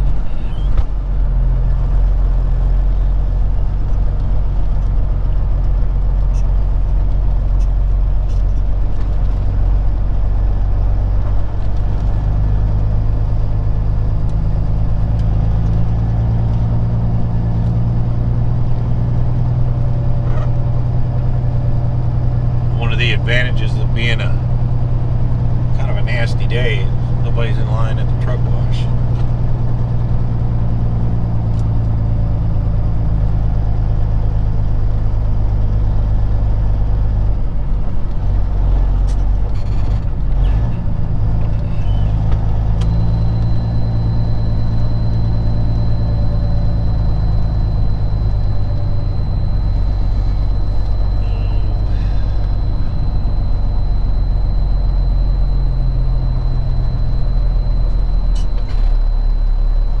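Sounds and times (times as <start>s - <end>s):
truck diesel engine running: 0.0s - 60.0s
thin high whine: 41.5s - 60.0s.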